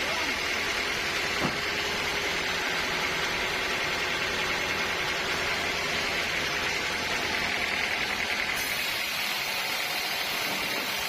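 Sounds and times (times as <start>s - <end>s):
sawmill machinery hiss: 8.4s - 11.0s.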